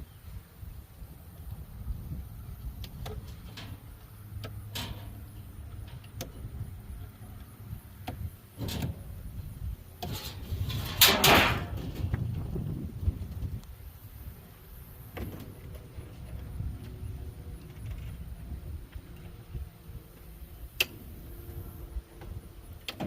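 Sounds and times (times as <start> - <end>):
metal scraping: 3.1 - 6.6, 8.5 - 12.8.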